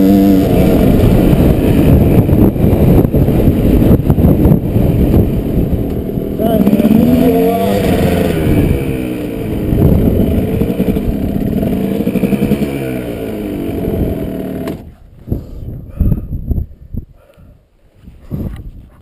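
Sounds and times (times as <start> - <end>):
dirt bike engine revving: 0.0 - 14.9
wind: 0.0 - 19.0.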